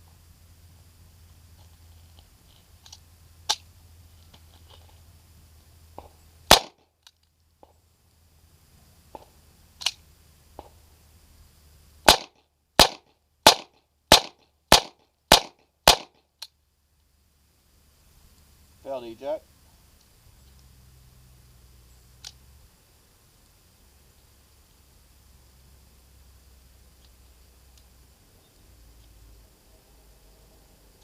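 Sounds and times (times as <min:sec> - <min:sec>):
quieter gunshot cracks: 0:06.0 - 0:06.8, 0:12.1 - 0:16.2
pistol shots: 0:06.5 - 0:06.8, 0:12.1 - 0:16.2.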